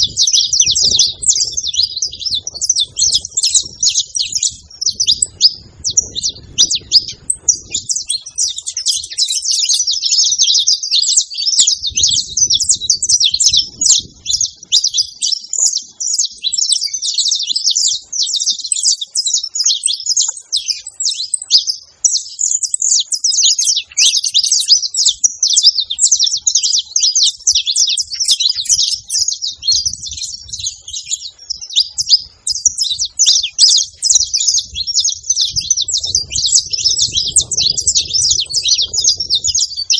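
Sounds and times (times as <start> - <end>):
finches chirping and singing: 0.0 - 39.9.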